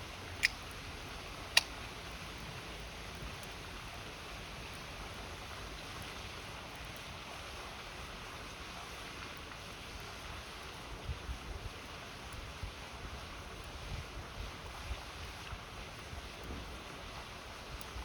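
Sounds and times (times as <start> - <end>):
campfire crackling: 0.1 - 7.1
burning wood popping: 0.3 - 0.8, 1.5 - 1.8.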